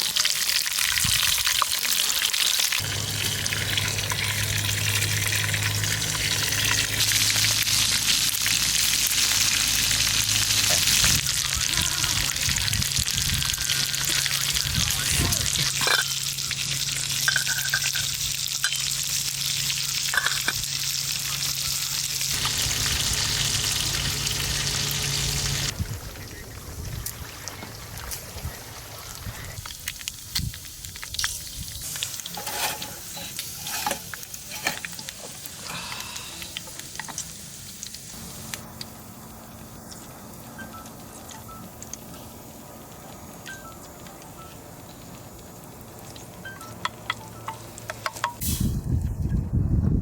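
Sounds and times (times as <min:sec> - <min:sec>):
food sizzling over campfire: 0:00.0 - 0:48.9
fire crackles: 0:00.0 - 0:49.3
low steady hum: 0:22.3 - 0:27.6.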